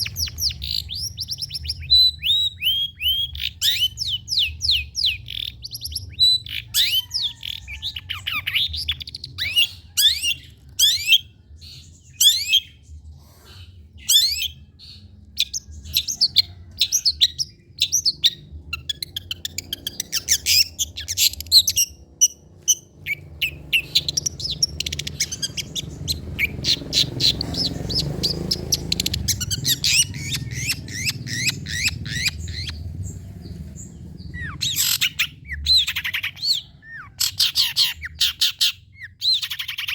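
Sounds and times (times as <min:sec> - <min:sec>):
shrike chirping: 0:17.9 - 0:39.9.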